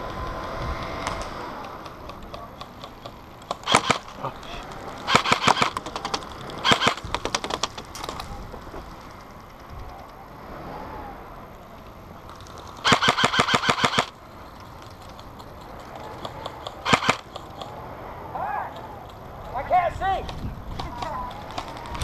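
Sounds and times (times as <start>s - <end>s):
airsoft rifle automatic fire: 3.5s - 4.2s, 4.8s - 7.8s, 12.8s - 14.2s, 16.1s - 17.5s.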